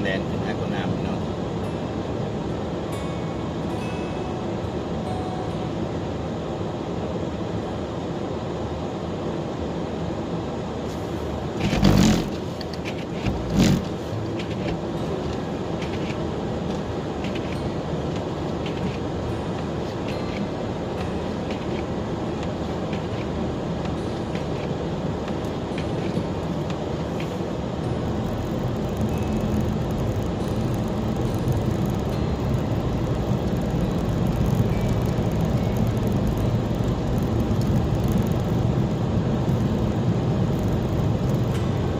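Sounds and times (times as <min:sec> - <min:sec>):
car driving through snow: 0:10.8 - 0:20.3, 0:24.4 - 0:41.9.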